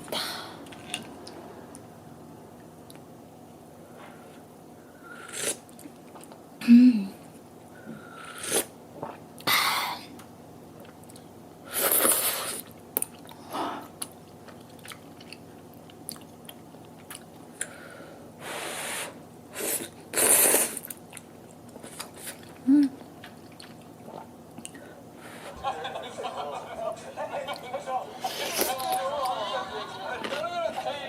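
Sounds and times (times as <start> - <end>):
chewing: 14.0 - 17.7, 20.8 - 22.6, 23.2 - 24.9.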